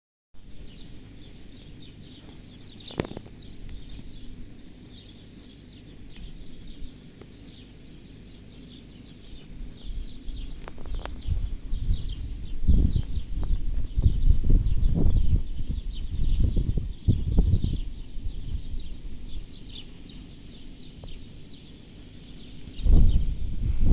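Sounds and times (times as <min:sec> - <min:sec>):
small birds chirping: 0:00.4 - 0:23.9
low rumble: 0:09.2 - 0:19.8, 0:22.6 - 0:23.9.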